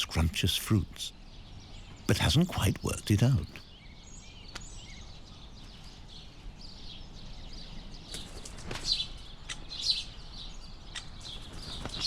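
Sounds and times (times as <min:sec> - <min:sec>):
birds chirping: 0:00.0 - 0:04.5
low background noise: 0:00.0 - 0:11.9.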